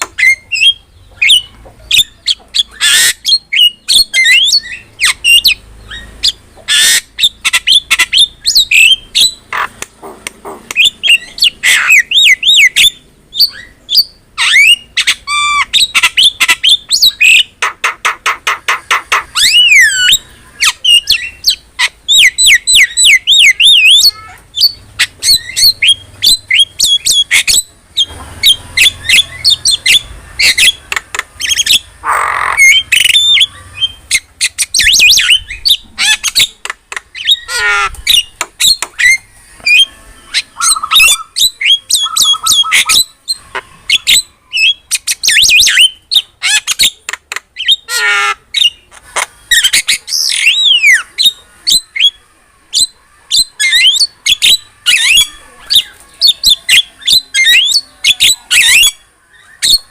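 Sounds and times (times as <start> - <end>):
myna singing varied calls: 0.0 - 59.9.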